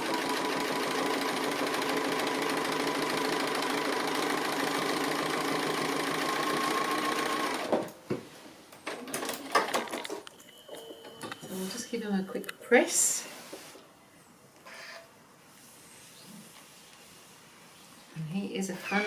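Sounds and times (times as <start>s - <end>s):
sewing machine running: 0.0s - 7.7s.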